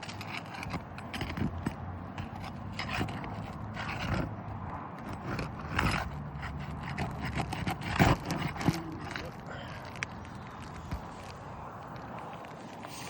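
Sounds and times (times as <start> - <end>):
scraping on roof shingles: 0.0 - 13.0.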